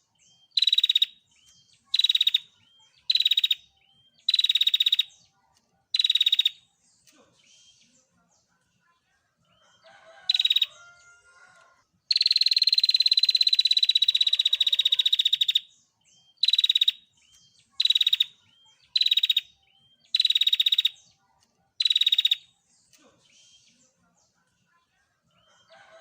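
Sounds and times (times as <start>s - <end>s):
bird rapid dry trill: 0.6s - 1.1s, 12.1s - 15.6s, 16.4s - 17.0s, 17.8s - 18.3s, 20.1s - 21.0s, 21.8s - 22.4s.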